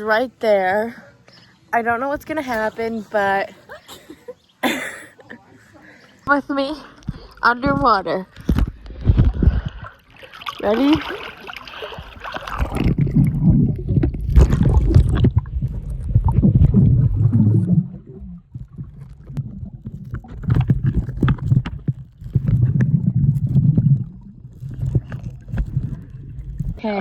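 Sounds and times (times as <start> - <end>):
underwater rumbling and gurgling: 7.0 - 27.0.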